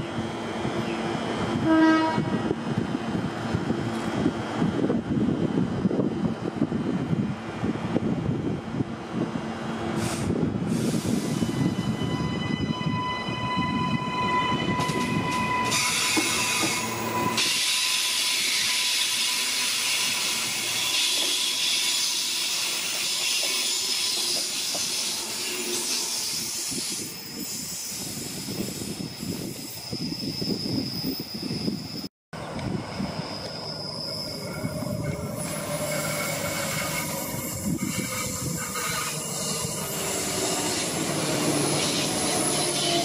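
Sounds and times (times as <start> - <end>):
hiss of wheels on rail: 9.8 - 11.8
high-pitched wheel squeal: 11.2 - 28.7, 29.3 - 32.1, 32.9 - 43.0
train rumble: 22.8 - 43.0.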